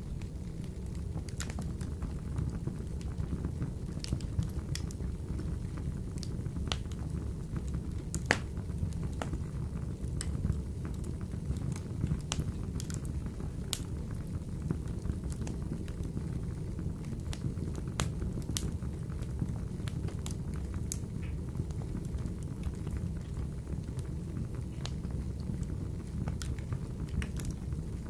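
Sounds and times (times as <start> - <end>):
fire crackles and pops: 0.0 - 28.0
wood fire rumbling in stove: 0.0 - 28.0.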